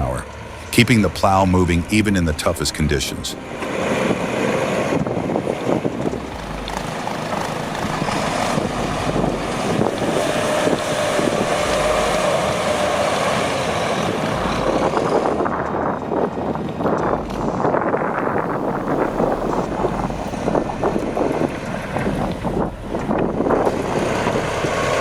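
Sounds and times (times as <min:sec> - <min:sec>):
truck engine and road noise: 0:00.0 - 0:25.0
wind on microphone: 0:03.4 - 0:25.0
faint steady whine: 0:18.2 - 0:25.0.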